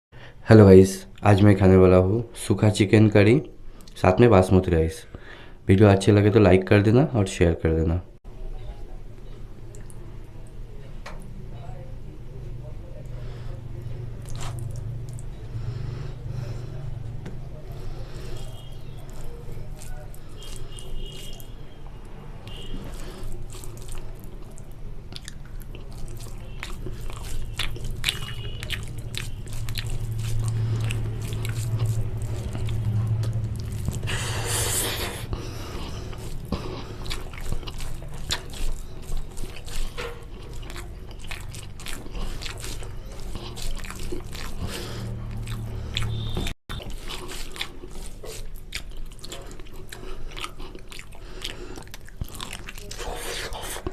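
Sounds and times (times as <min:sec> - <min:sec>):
steady low hum: 0:09.2 - 0:21.1
person chewing food: 0:13.0 - 0:53.9.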